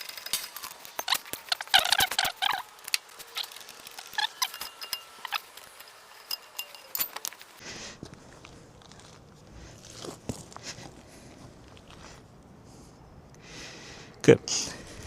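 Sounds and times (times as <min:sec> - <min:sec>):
car jack squeaking and creaking: 0:00.0 - 0:07.6.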